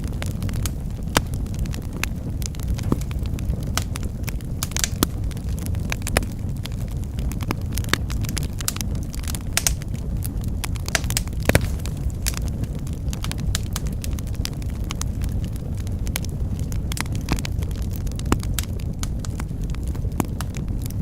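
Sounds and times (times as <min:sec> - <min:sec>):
fire low rumble: 0:00.0 - 0:21.0
wood fire crackling and popping: 0:00.0 - 0:21.0.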